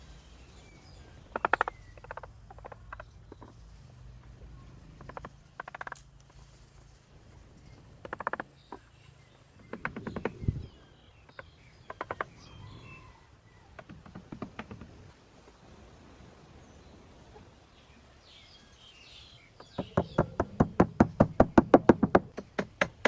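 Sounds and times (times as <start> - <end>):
faint bird chirps: 7.6 - 13.8.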